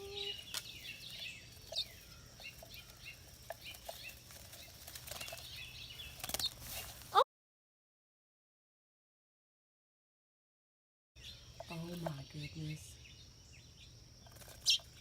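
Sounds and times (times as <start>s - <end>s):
small birds flapping wings: 0.0s - 7.2s, 14.3s - 15.0s.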